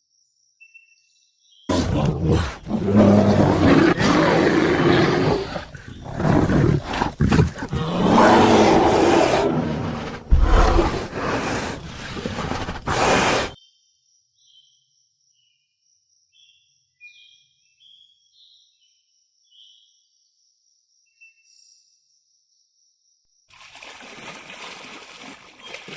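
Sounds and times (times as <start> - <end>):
big cat roaring and growling: 1.7 - 13.6.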